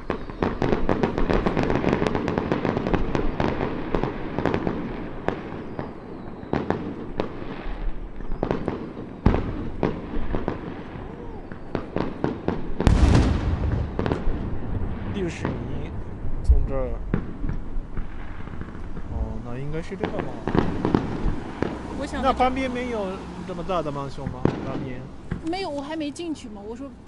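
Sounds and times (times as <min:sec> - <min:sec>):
heavy firework boom: 0:00.0 - 0:23.3, 0:24.1 - 0:25.5
fireworks crackling bursts: 0:00.0 - 0:27.0
fireworks sharp bangs: 0:00.0 - 0:27.0.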